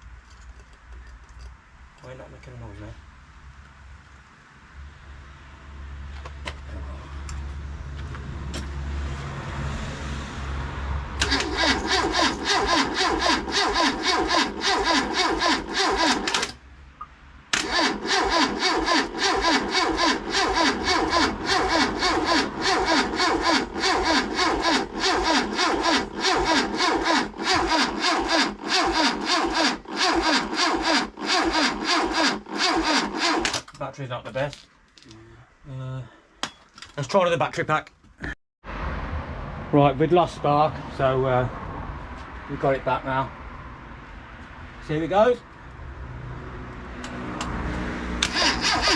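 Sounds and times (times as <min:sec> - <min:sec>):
starter motor cranking engine: 0:11.2 - 0:16.6, 0:17.6 - 0:33.7, 0:48.2 - 0:48.9.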